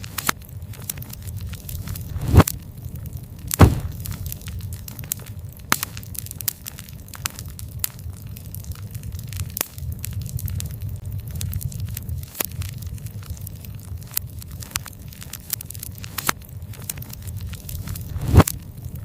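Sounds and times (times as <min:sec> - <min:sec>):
wood fire crackling and popping: 0:00.0 - 0:19.0
low rumble: 0:01.8 - 0:04.6.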